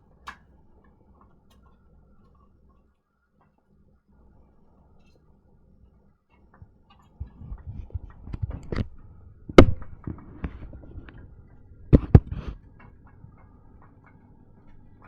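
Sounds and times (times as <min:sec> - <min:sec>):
tape recorder clicks and knocks: 0:09.5 - 0:11.2, 0:11.9 - 0:12.5.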